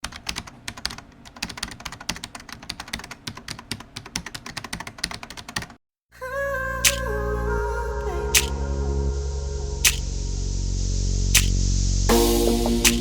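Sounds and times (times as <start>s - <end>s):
keyboard typing clicks: 0.0s - 5.8s
music: 6.9s - 13.0s.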